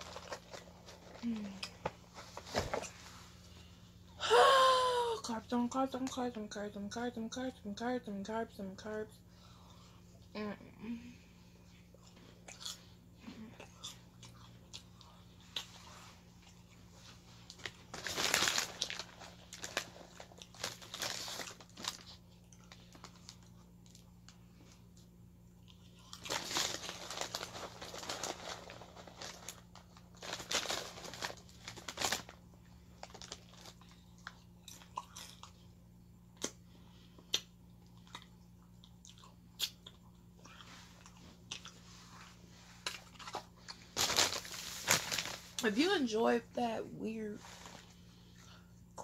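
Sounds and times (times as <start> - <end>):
faint steady hum: 0.0 - 49.0
person chewing food: 11.6 - 17.8, 20.2 - 26.4, 33.0 - 44.0.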